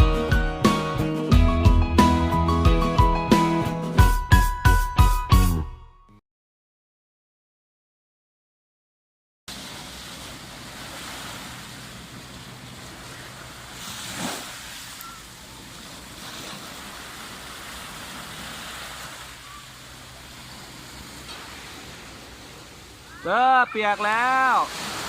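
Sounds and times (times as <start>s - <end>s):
sea waves washing on beach: 9.5s - 25.0s.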